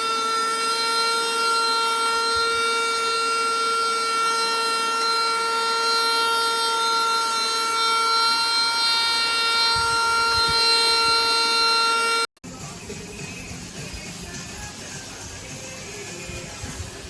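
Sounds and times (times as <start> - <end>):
vacuum motor whine: 0.0 - 12.3.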